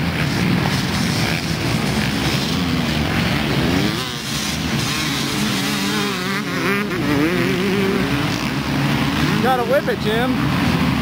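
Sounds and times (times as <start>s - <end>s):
motocross bikes revving: 0.0s - 11.0s.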